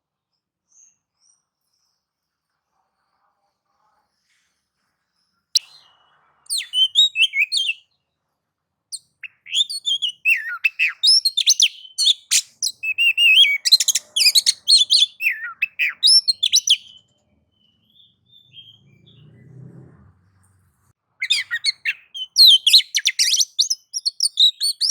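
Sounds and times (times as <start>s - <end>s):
bird singing whistles and chatter: 5.6s - 7.9s, 9.0s - 19.4s, 21.2s - 24.9s.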